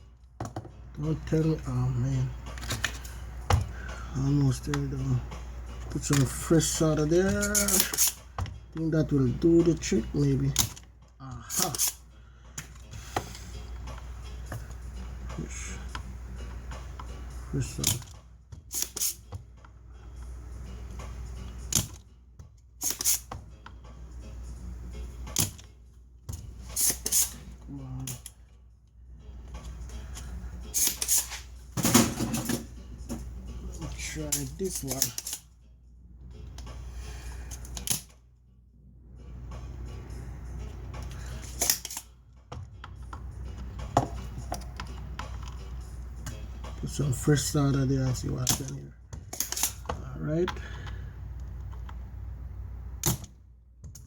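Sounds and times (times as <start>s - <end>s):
tools clicking: 7.3s - 8.2s, 10.5s - 12.0s, 17.8s - 19.3s, 21.5s - 22.0s, 22.8s - 23.8s, 25.3s - 25.7s, 26.3s - 27.4s, 30.1s - 31.4s, 34.2s - 35.5s, 37.5s - 38.2s, 41.0s - 42.1s, 48.4s - 50.8s.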